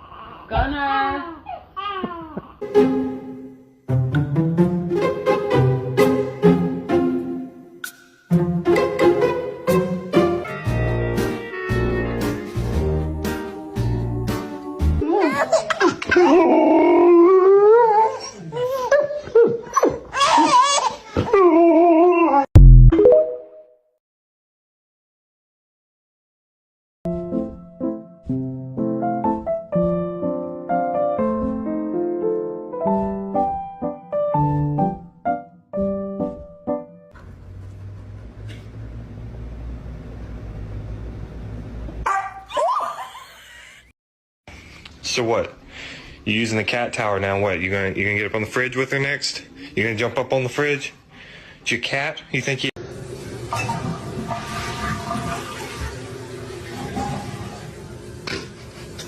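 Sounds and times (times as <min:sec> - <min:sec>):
dog whining: 0:16.2 - 0:20.4
dog barking: 0:42.0 - 0:42.6.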